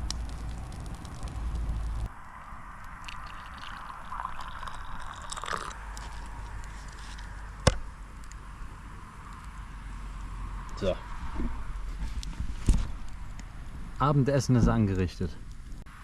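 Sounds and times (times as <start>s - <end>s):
tea liquid being handled: 3.0s - 7.4s.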